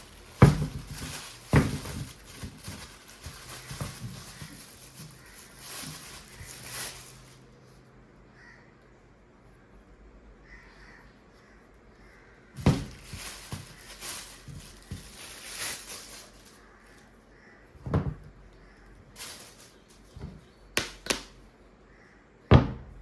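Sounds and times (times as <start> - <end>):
cardboard packaging rustling: 0.0 - 7.6, 12.6 - 17.1, 19.1 - 21.4
knocks on cardboard: 0.4 - 0.8, 1.5 - 2.1, 12.6 - 13.0.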